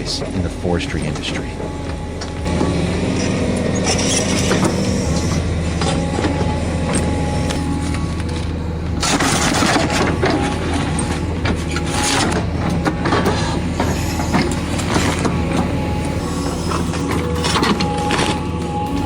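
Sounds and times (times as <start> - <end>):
excavator engine running: 0.0 - 19.0.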